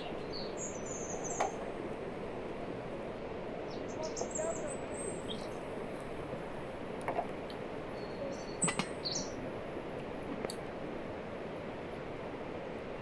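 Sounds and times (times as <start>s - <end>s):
birds chirping: 0.0s - 1.6s, 3.6s - 5.7s, 7.9s - 9.4s
outdoor background hiss: 0.0s - 13.0s.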